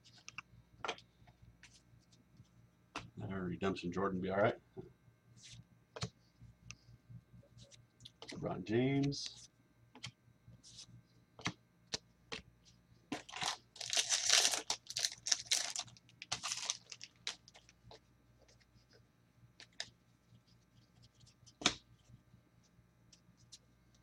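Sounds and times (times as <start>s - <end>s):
wrapper tearing and crinkling: 13.2s - 17.6s.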